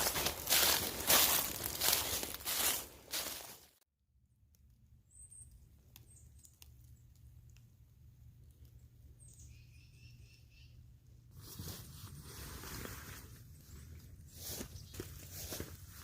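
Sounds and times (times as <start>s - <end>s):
faint bird chirps: 9.1s - 10.9s.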